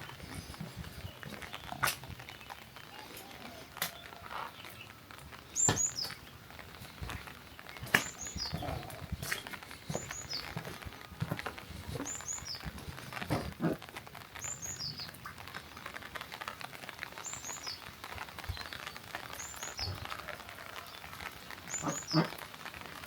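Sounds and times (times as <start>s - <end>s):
rain pattering and dripping: 0.0s - 23.0s.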